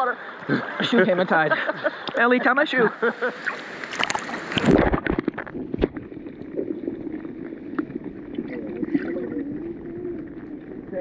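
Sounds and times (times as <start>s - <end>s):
muffled steady water: 0.0s - 11.0s
river water splashing: 2.9s - 6.0s.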